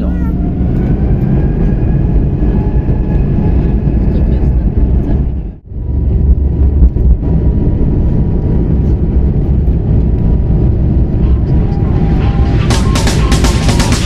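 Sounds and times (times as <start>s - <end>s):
jet engine rumble in cabin: 0.0s - 13.1s.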